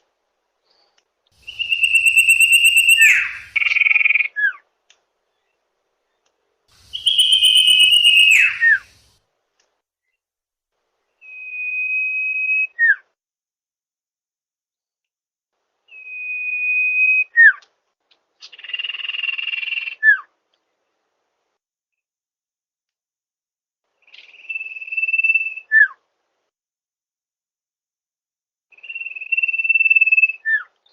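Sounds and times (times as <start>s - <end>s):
bird song whistles: 1.4s - 3.9s, 6.8s - 9.1s, 11.2s - 13.0s, 15.9s - 17.6s, 24.1s - 26.0s, 28.7s - 30.9s.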